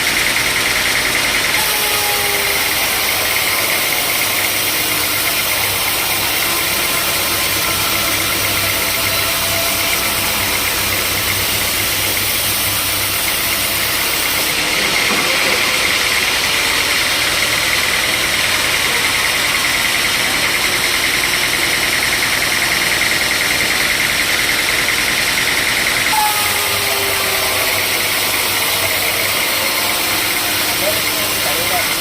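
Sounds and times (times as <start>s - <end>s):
sawmill machinery running: 0.0s - 32.0s.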